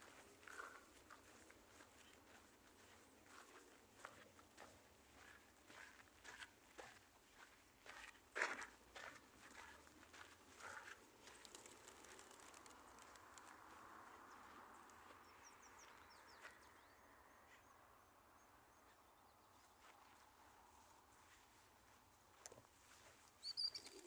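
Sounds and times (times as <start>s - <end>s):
high bird chirps: 23.4s - 24.0s.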